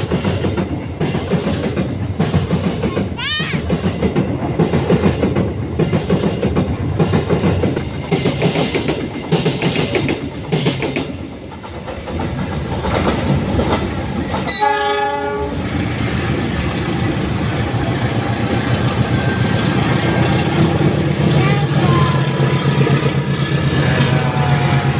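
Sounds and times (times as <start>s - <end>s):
train wheels clattering over rail joints: 0.0s - 15.3s
rumble of train wagons: 0.0s - 24.9s
locomotive horn blast: 14.5s - 15.6s, 23.9s - 24.9s.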